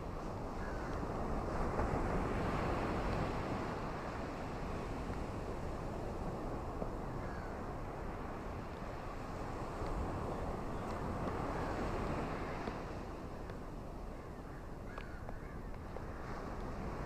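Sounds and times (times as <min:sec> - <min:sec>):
surf washing on beach: 0:00.0 - 0:14.9, 0:15.8 - 0:17.0
wind: 0:00.0 - 0:17.0.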